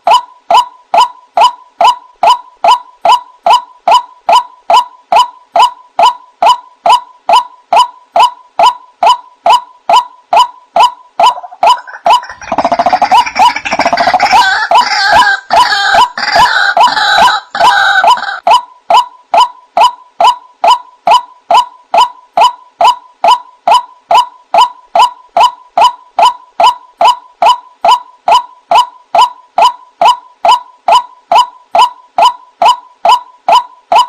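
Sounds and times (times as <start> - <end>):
waterhen calling: 10.4 - 18.5.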